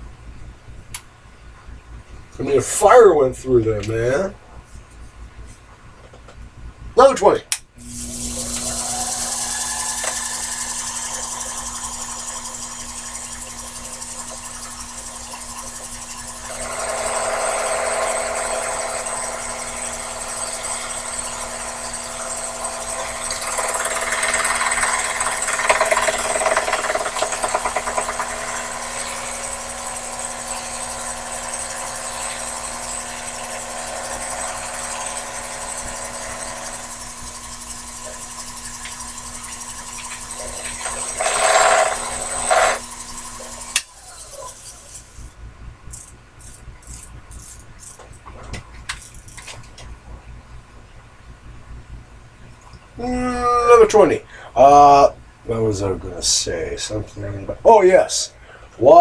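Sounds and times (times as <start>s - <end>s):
lathe motor whine: 7.8s - 45.3s
tool cutting metal: 7.8s - 45.3s.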